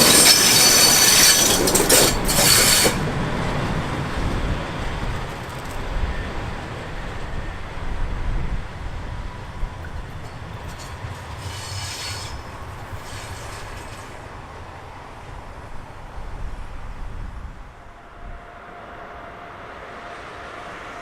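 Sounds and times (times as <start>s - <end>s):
high-pitched wheel squeals: 0.0s - 3.0s, 10.2s - 14.2s
train wheels rumbling on track: 0.0s - 21.0s.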